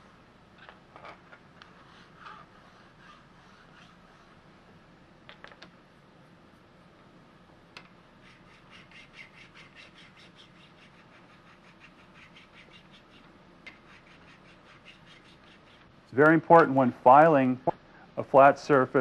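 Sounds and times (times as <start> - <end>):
file rasping on steel: 8.2 - 15.9.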